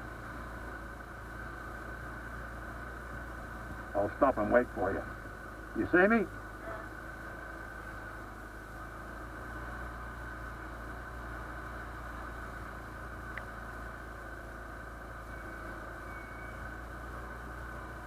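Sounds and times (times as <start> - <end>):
motorcycle engine running: 0.0 - 18.0
faint click: 13.3 - 13.5.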